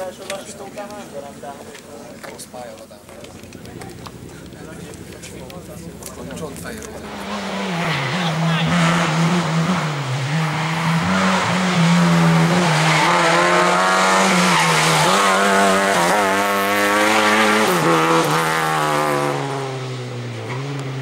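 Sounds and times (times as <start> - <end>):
car engine revving through gears: 5.2 - 21.0.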